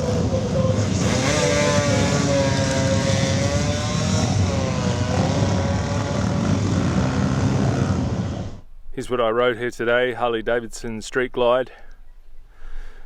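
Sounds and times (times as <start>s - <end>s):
motorcycle engine revving high: 0.0s - 8.6s.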